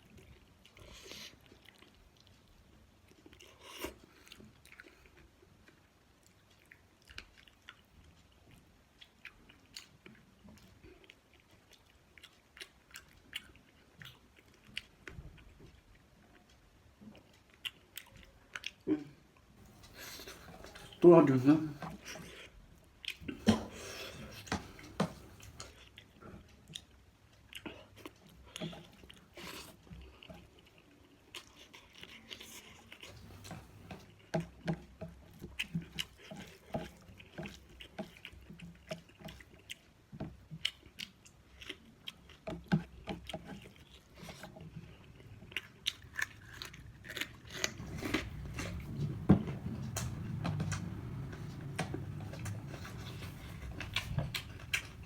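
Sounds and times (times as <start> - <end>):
person chewing food: 0.0 - 55.0
low steady hum: 47.5 - 55.0.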